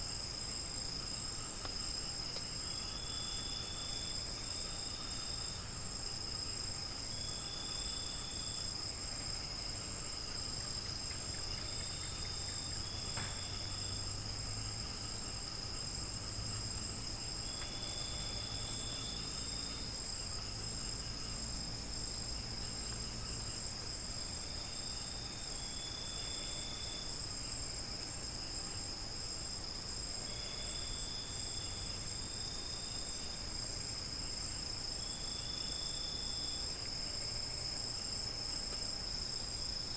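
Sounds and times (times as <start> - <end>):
crickets trilling: 0.0 - 39.9
lower cricket chirps: 0.0 - 39.9.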